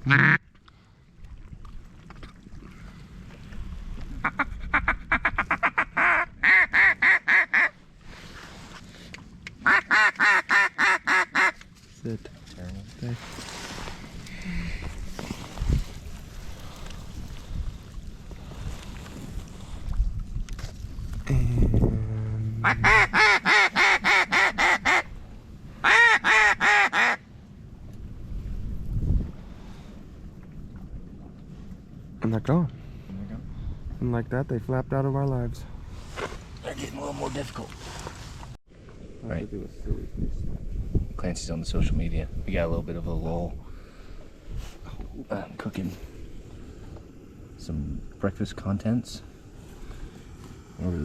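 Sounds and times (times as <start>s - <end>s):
duck call clucks and quacks: 0.0s - 0.4s, 4.2s - 7.8s, 9.6s - 11.6s, 22.6s - 25.1s, 25.8s - 27.2s
low steady hum: 21.0s - 23.6s.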